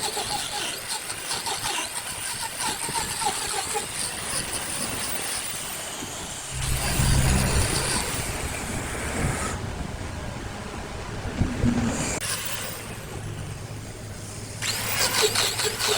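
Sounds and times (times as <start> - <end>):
steady mechanical noise: 0.1 - 15.9
loud low hum: 6.5 - 11.8.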